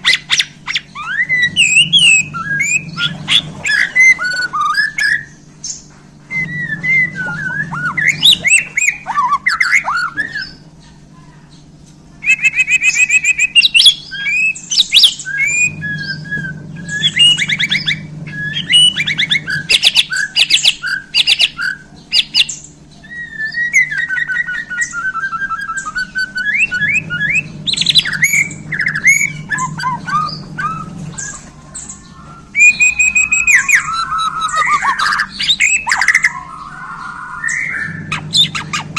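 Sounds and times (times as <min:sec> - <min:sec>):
songbird singing whistles and trills: 0:00.0 - 0:11.0, 0:12.1 - 0:38.9.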